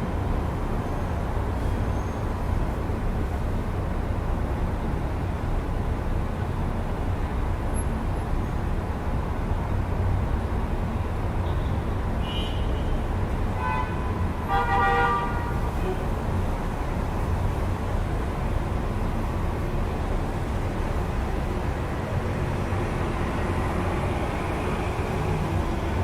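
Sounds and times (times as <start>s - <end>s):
city traffic rumble: 0.0s - 26.0s
car horns honking: 13.6s - 15.6s.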